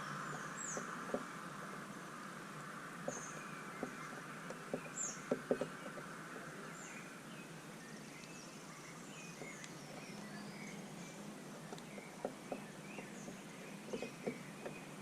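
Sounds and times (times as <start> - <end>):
small birds chirping: 0.0 - 15.0
steady background hiss: 0.0 - 15.0.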